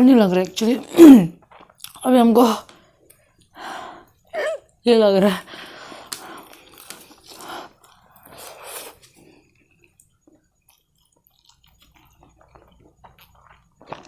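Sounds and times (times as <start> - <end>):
person chewing noodles: 1.4 - 2.0, 6.0 - 14.0.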